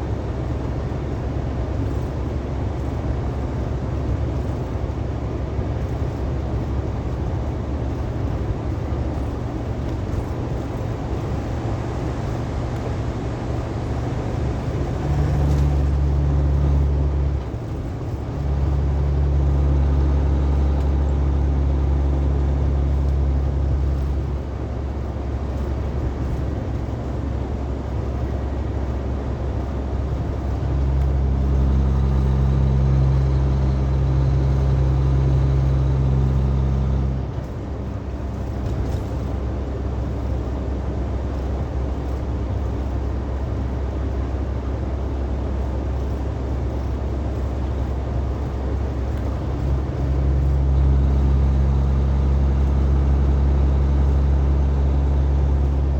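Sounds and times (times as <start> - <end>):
truck engine and road rumble: 0.0 - 55.9.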